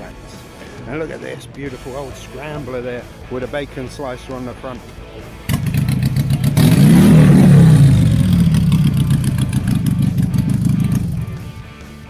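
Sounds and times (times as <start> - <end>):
motorcycle engine revving: 5.4 - 12.0.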